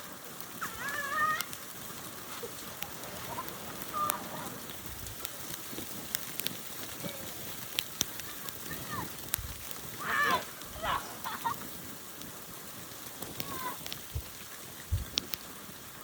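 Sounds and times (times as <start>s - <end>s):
crackly hiss: 0.0s - 16.0s
small clicks: 0.4s - 15.9s
young person shrieking: 0.6s - 1.6s, 10.0s - 11.4s.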